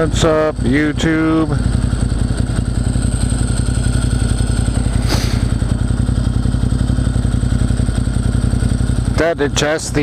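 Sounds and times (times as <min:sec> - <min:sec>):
motorcycle engine idling: 0:00.0 - 0:10.0
sharp click: 0:05.0 - 0:05.5.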